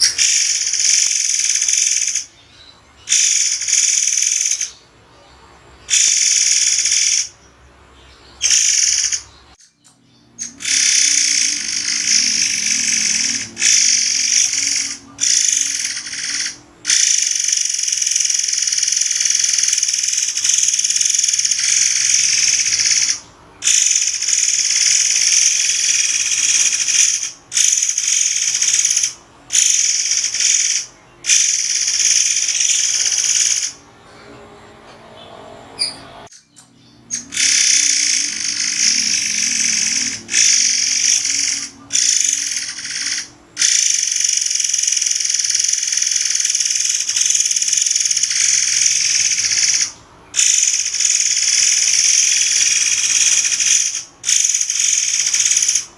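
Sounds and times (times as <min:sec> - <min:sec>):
songbird singing shrill phrases: 0:00.0 - 0:33.9, 0:35.8 - 0:55.9.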